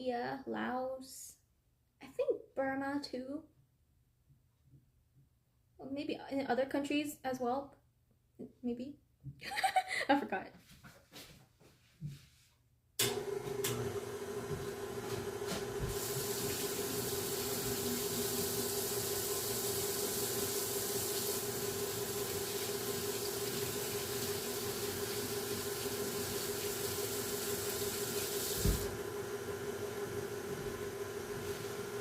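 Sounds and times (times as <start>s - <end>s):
tap water running into sink: 15.5s - 29.0s.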